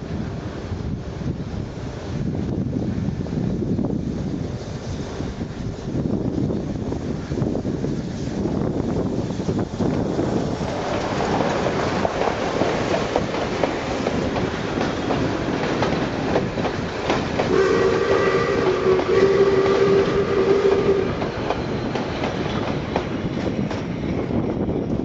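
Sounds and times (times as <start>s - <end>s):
train carriages rolling past: 0.2s - 25.0s
wheels clicking over rail joints: 8.1s - 17.5s
steam locomotive whistle: 17.4s - 21.4s.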